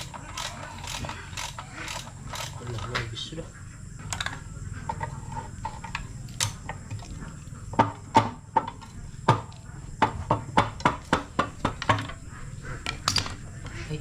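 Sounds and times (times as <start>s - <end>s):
metal tools knocking and clicking: 0.0s - 3.1s, 7.8s - 12.2s, 12.8s - 13.5s.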